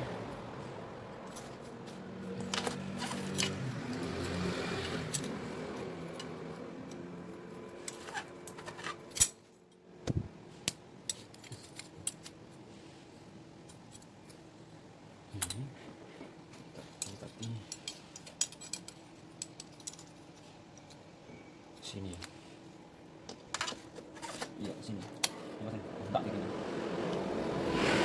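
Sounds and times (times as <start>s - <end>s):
light metallic clicks and clinks: 16.5s - 22.4s.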